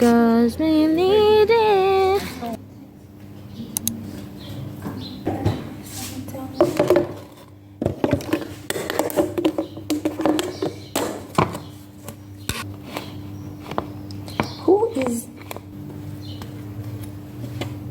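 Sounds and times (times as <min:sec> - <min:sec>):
indistinct voices: 0:00.0 - 0:07.2
steady low hum: 0:00.0 - 0:17.9
objects tapping and knocking: 0:06.5 - 0:13.1.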